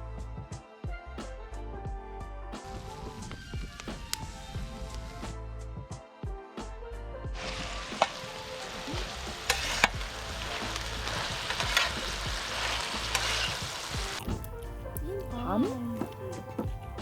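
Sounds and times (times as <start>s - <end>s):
food sizzling in a hot pan: 7.4s - 14.6s.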